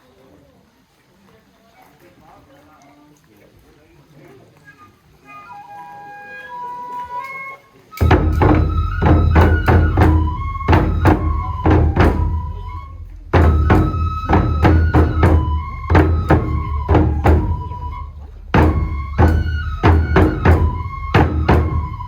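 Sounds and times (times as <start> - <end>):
high flute melody: 4.6 - 22.0
deep drum pounding: 8.0 - 22.0.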